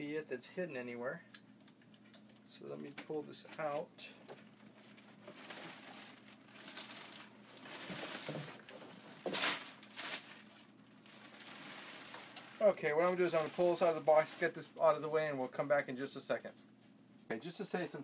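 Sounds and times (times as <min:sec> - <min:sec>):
plastic packaging crinkling: 0:04.6 - 0:14.8.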